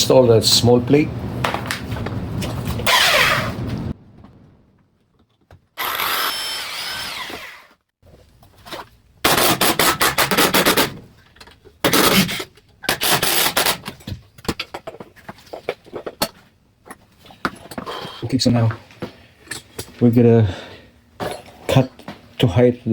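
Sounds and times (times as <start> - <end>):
power drill driving screws: 5.8 - 7.8.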